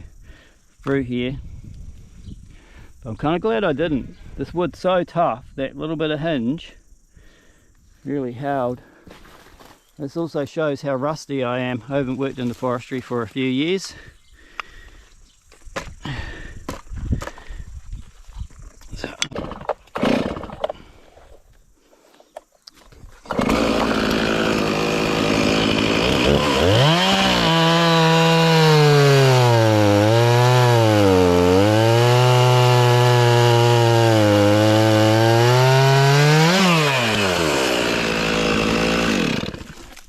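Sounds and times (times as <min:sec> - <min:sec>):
chainsaw cutting wood: 0:19.3 - 0:20.9, 0:23.2 - 0:40.0.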